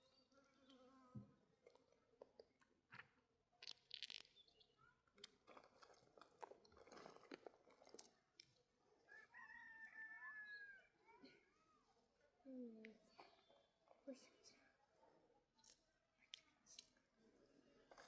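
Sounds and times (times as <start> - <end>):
faint clicks and crunches: 1.6 - 4.5, 5.1 - 8.7.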